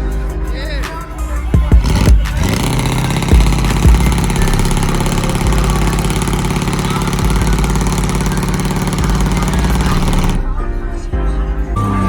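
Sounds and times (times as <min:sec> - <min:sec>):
pickup truck engine idling: 0:00.9 - 0:10.5.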